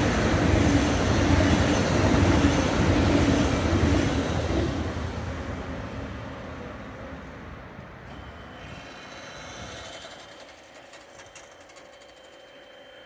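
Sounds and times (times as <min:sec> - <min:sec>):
train rolling: 0:00.0 - 0:06.7, 0:07.6 - 0:13.0
crossing barrier motor whine: 0:08.0 - 0:13.0.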